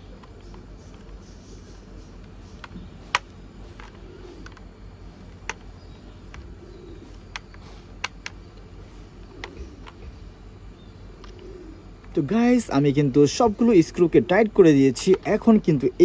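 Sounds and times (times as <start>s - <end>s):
screwdriver clicking on plastic: 5.3s - 8.7s.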